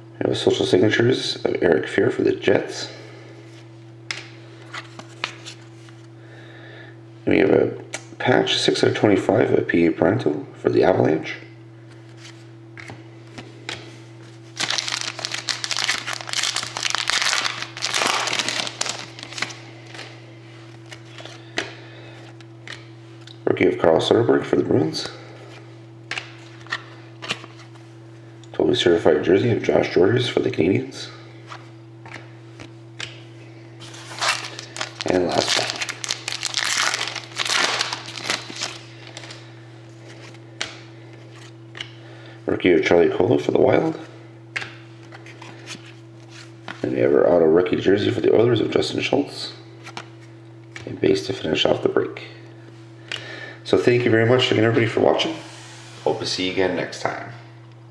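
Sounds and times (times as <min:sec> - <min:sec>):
steady low hum: 0:00.0 - 0:57.9
wrapper crinkling being torn: 0:14.6 - 0:20.1, 0:33.8 - 0:39.4.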